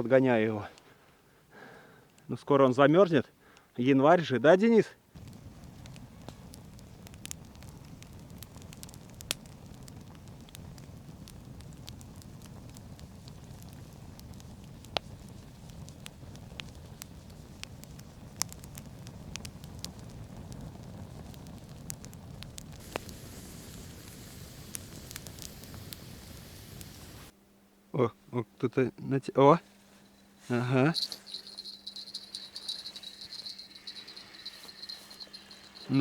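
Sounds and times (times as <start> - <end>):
campfire crackling and popping: 5.1 - 27.3, 30.9 - 36.0.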